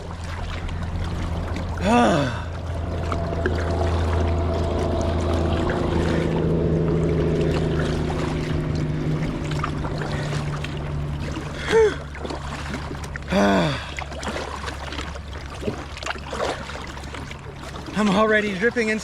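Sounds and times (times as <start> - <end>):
faint water noise: 0.0 - 19.0
low motor drone: 0.0 - 19.0
short falling vocal sound: 1.8 - 6.7.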